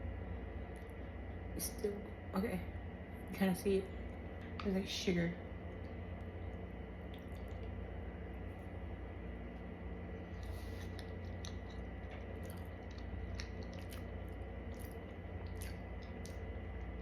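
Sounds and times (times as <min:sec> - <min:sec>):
steady low hum: 0:00.0 - 0:17.0
person chewing close to microphone: 0:07.1 - 0:07.8, 0:10.2 - 0:17.0.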